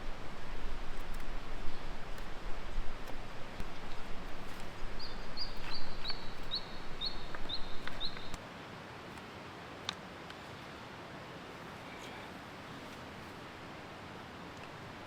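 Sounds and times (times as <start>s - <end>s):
rustling noise: 0.0s - 8.4s.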